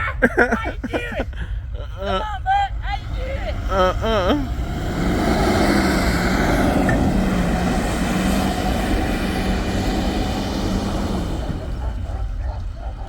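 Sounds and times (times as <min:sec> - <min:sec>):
truck engine at high revs: 0:02.7 - 0:13.0.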